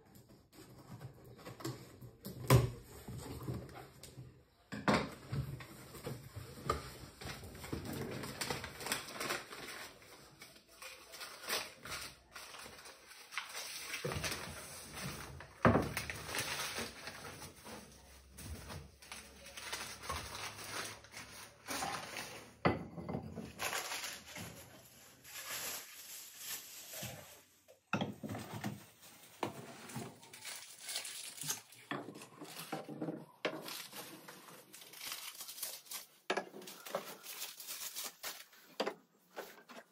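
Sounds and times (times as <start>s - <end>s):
rustling: 23.4s - 27.6s, 28.3s - 39.9s.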